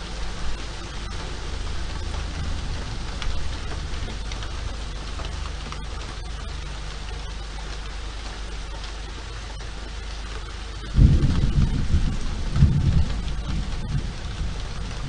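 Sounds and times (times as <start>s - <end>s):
low rumble of thunder: 0.0s - 5.0s, 10.8s - 15.0s
rain hissing: 0.0s - 15.0s.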